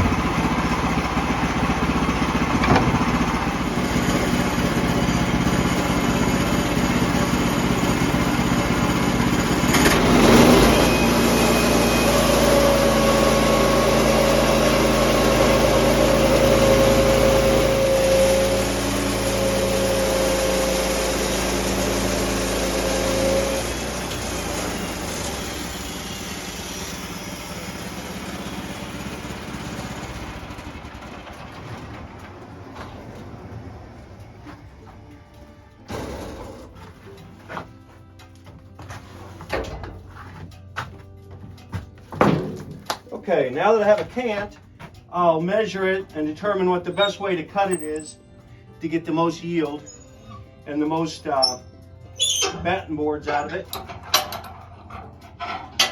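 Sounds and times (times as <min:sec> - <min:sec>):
sawmill engine running under load: 0:00.0 - 0:51.6
saw blade cutting log: 0:02.3 - 0:30.4, 0:51.2 - 0:51.6.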